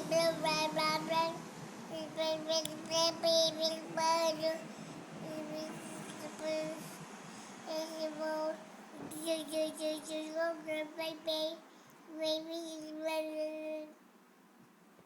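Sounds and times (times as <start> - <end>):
child singing: 0.0 - 7.0, 7.6 - 14.0.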